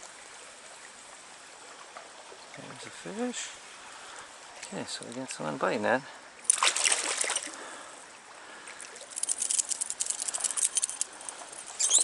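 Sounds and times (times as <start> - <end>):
stream running water: 0.0 - 12.0
fish splashing at water surface: 6.4 - 7.8.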